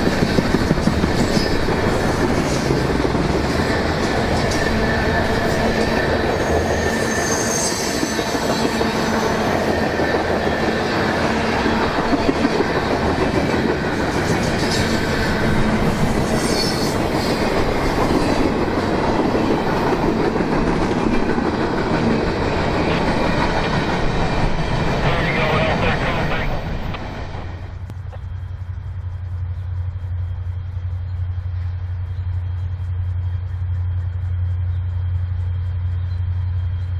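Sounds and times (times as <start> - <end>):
train wheels on rail: 0.0 - 30.7
high-pitched wheel squeals: 6.4 - 8.6, 16.3 - 17.4.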